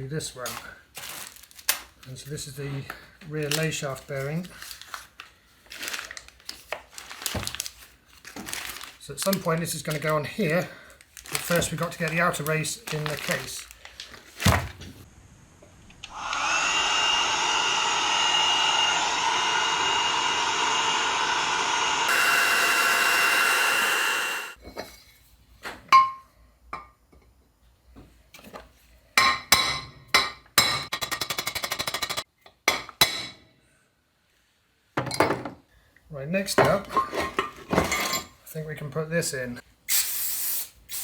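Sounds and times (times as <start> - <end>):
heat gun blowing with whistle: 16.0 - 24.6, 39.9 - 41.0.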